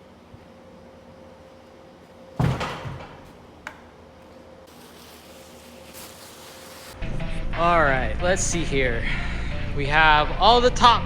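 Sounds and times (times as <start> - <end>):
low hum: 7.0 - 11.0.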